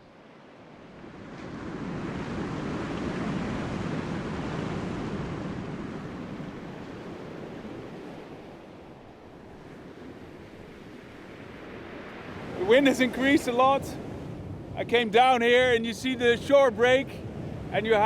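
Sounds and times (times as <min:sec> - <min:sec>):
sea waves and surf: 0:00.0 - 0:18.0.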